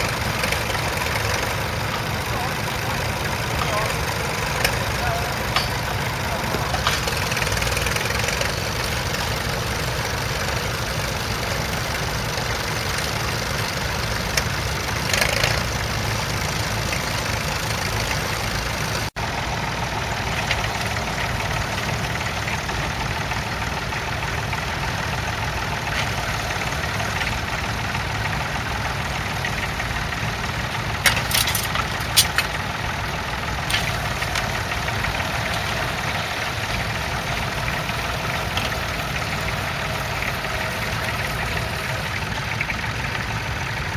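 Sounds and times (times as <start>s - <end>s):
short clanks: 0.0s - 9.5s, 30.9s - 41.8s
tractor engine running: 0.0s - 43.9s.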